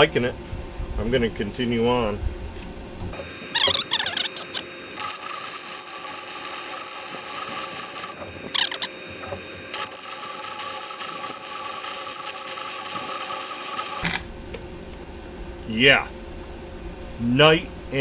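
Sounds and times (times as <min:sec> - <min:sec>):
welder arc crackling: 0:03.2 - 0:14.1.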